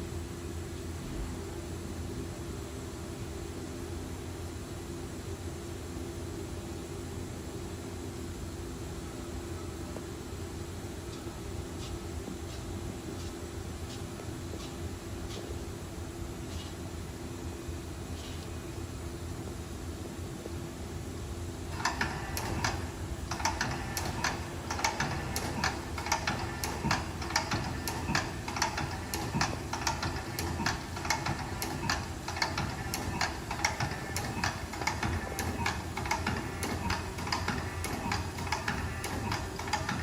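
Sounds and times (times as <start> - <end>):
lathe humming: 21.8 - 40.0.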